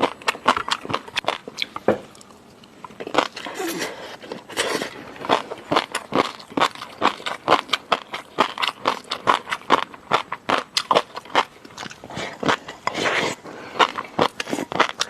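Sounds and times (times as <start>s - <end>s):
crunchy chewing: 0.0s - 15.0s.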